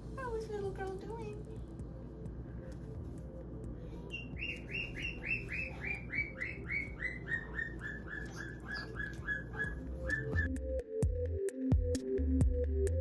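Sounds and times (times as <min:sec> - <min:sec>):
soft background music: 0:00.0 - 0:13.0
bird chirping: 0:04.1 - 0:10.5.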